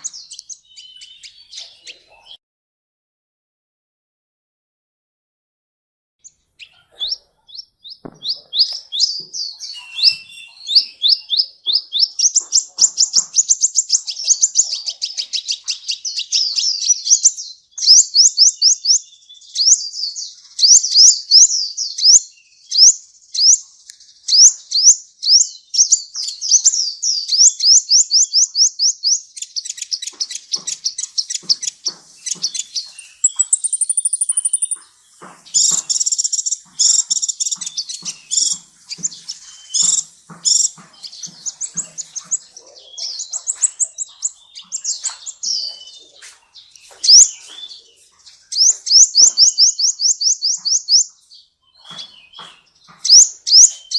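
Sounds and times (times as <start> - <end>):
bird chirping high sharp notes: 0.0 - 2.3, 6.2 - 23.6, 24.3 - 53.9
thin high bird trill: 6.2 - 18.9, 24.3 - 51.1.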